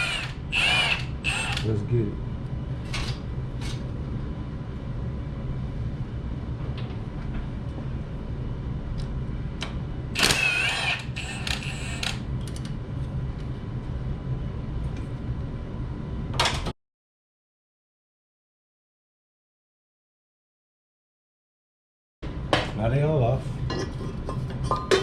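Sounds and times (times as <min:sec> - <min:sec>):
squealing whir: 0:00.0 - 0:01.7, 0:10.2 - 0:12.2
steady low hum: 0:00.0 - 0:16.4, 0:22.2 - 0:25.0.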